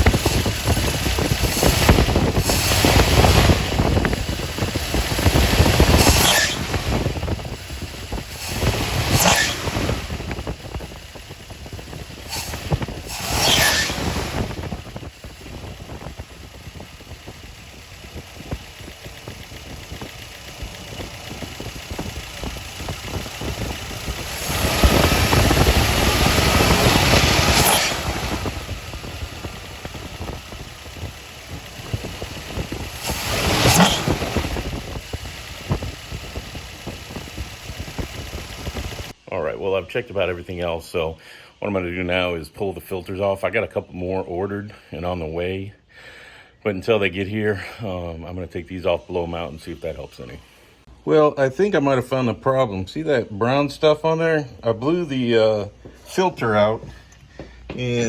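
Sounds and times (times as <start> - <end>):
car engine rumbling and revving: 0.0 - 39.2.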